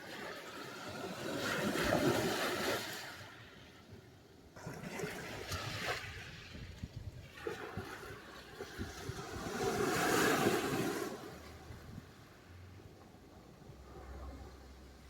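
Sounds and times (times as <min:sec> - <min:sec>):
waves breaking on shore: 0:00.0 - 0:03.8, 0:04.6 - 0:12.8.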